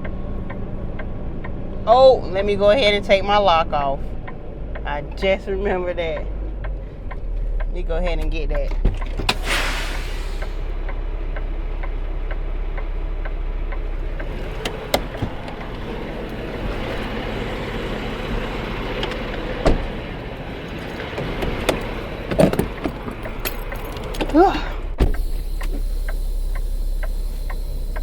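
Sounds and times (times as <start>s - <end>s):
diesel truck engine idling: 0.0s - 28.0s
metallic clicks and knocks: 20.7s - 24.4s.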